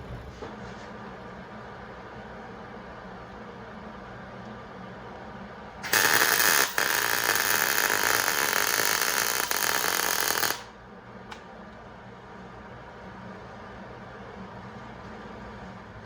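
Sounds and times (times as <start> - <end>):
welding arc sizzle: 5.8 - 10.8.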